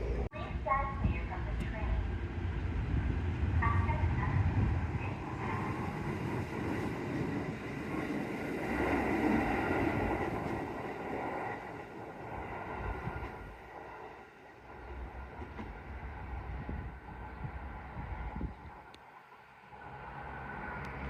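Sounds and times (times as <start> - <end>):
electric train running on rails: 0.0 - 21.0.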